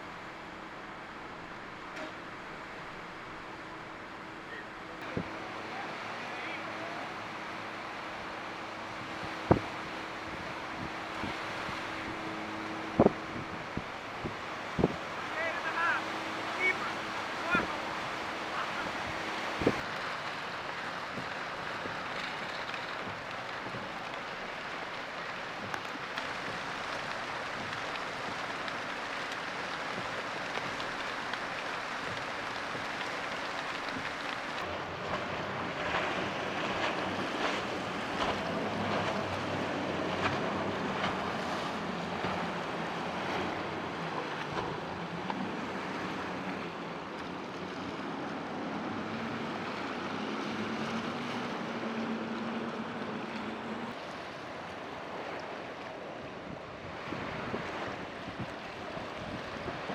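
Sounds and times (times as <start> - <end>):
boat engine running: 0.0 - 59.9
surf: 0.0 - 59.9
wind on microphone: 7.1 - 15.3, 16.0 - 19.9, 56.4 - 59.9.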